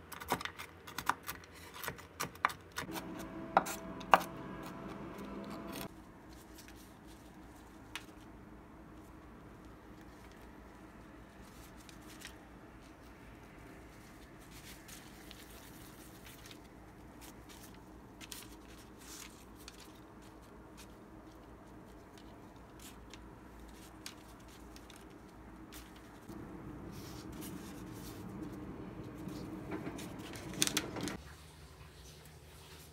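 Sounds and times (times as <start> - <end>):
low steady hum: 2.9 - 5.9, 25.4 - 31.2
rustling parchment paper: 10.0 - 31.2.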